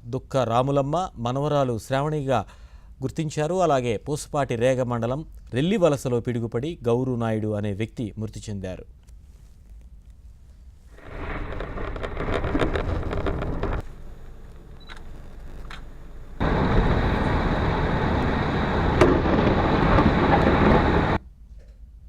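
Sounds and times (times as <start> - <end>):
gusty wind: 10.9 - 21.2
heavy rain: 11.0 - 21.2.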